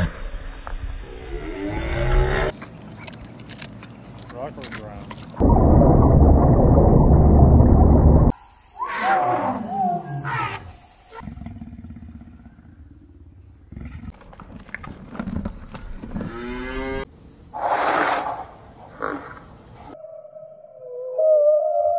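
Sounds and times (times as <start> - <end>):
loud low rumble: 5.4 - 8.3
whale whistles and squeals: 8.4 - 11.2, 19.9 - 21.9
rising animal call: 8.7 - 11.4
lion growls: 11.2 - 14.2.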